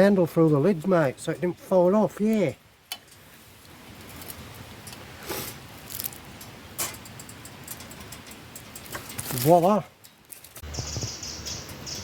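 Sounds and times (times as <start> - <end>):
campfire hissing and crackling: 2.2 - 10.6.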